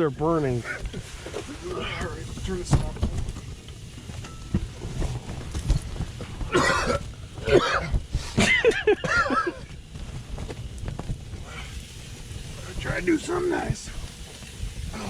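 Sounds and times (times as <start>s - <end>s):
strong wind rumble: 0.7s - 15.0s
person coughing: 6.5s - 9.6s.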